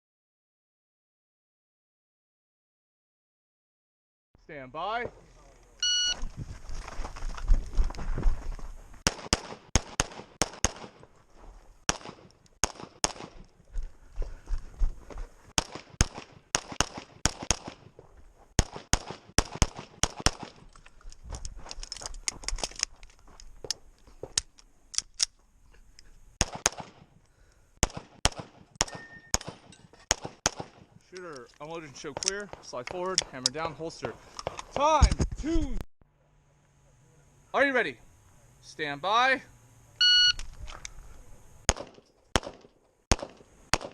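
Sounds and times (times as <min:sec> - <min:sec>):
pistol shots: 0:09.0 - 0:11.0, 0:11.9 - 0:13.4, 0:15.6 - 0:17.9, 0:18.6 - 0:20.6, 0:26.4 - 0:27.0, 0:27.8 - 0:30.9, 0:41.7 - 0:43.9.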